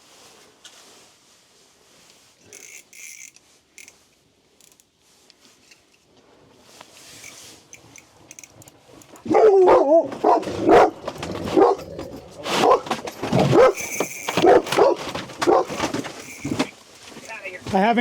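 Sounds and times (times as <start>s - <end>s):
dog barking and yelping: 9.2s - 15.9s.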